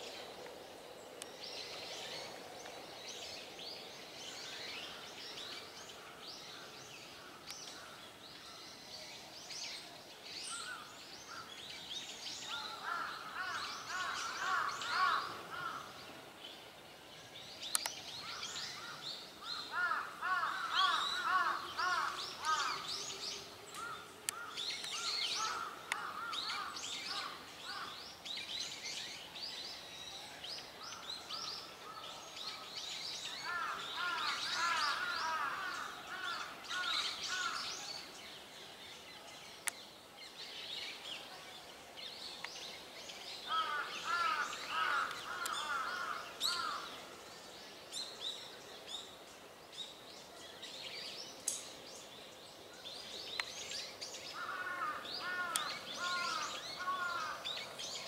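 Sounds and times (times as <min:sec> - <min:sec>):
birds repeated call notes: 0:10.5 - 0:16.7, 0:17.6 - 0:29.9, 0:30.6 - 0:38.6, 0:39.3 - 0:47.3, 0:52.8 - 0:58.0.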